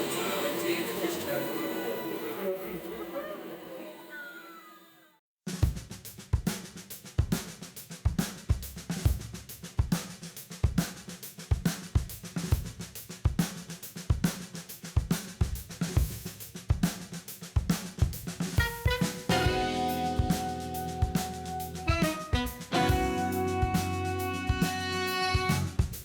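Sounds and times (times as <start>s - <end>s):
drum kit playing groove: 5.5s - 26.0s.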